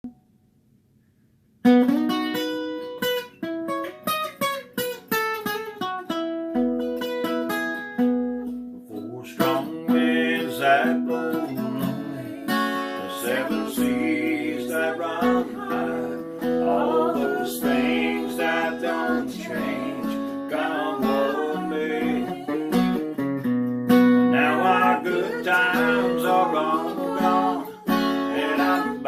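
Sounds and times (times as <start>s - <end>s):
fingerpicked acoustic guitar: 1.6s - 29.0s
person singing: 8.9s - 23.0s, 24.3s - 29.0s.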